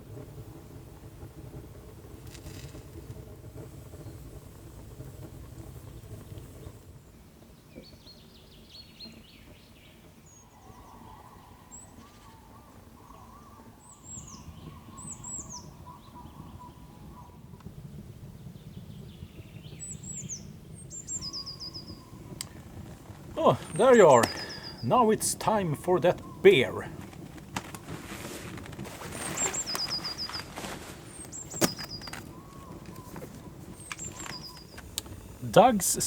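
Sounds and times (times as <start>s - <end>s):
low warbling birdsong: 5.7s - 22.9s, 23.5s - 26.9s, 29.1s - 30.4s, 31.1s - 35.8s
high downward-sweeping bird chirps: 13.0s - 17.3s, 19.4s - 22.3s, 23.6s - 25.2s, 29.1s - 30.5s, 31.1s - 34.8s.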